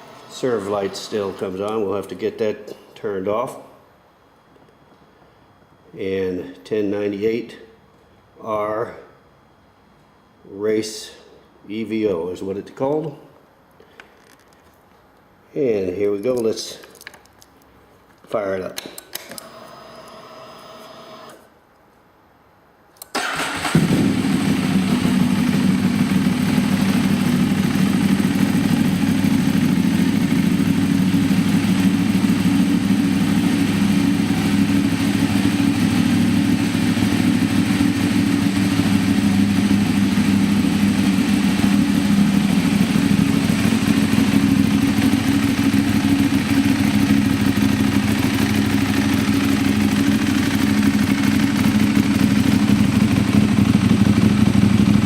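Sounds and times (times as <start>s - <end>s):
motorcycle engine idling: 23.8s - 55.0s.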